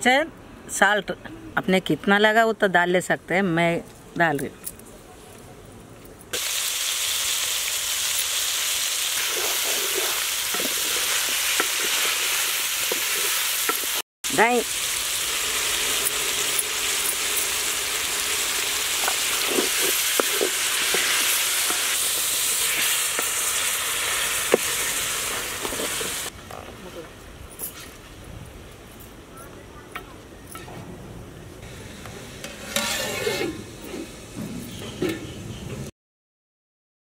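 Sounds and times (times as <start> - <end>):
chicken sizzling in a pot: 6.4 - 26.3
spatula stirring: 9.2 - 13.4.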